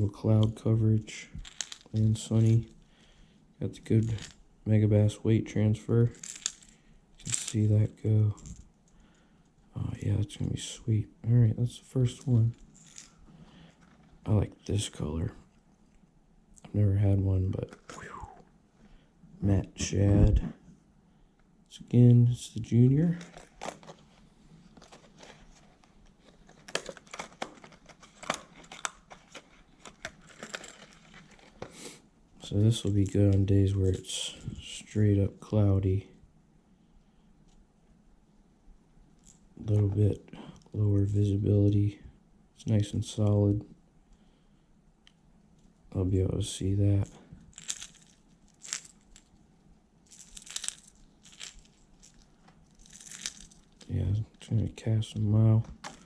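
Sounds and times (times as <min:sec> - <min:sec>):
plastic packaging clicking and crinkling: 0:01.4 - 0:02.8, 0:23.0 - 0:31.8, 0:47.4 - 0:49.4, 0:50.1 - 0:54.5, 0:55.6 - 0:56.0
plastic packaging rustling: 0:23.0 - 0:31.9, 0:47.4 - 0:49.4, 0:50.0 - 0:53.9.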